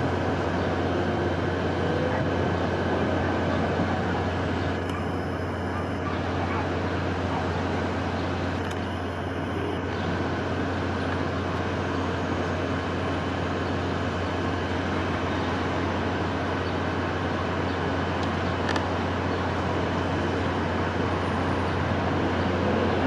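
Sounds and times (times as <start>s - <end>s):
steady wind rush: 0.0s - 23.0s.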